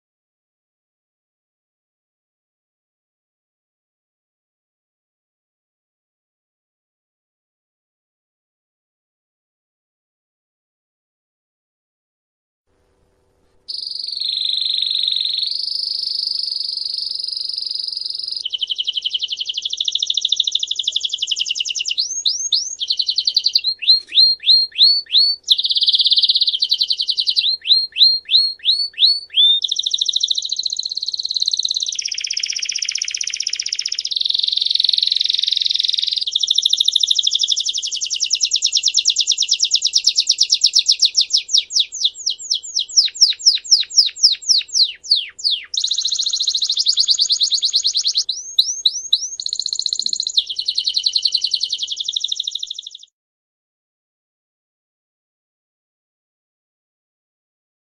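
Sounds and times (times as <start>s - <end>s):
songbird singing trills: 13.7s - 53.1s.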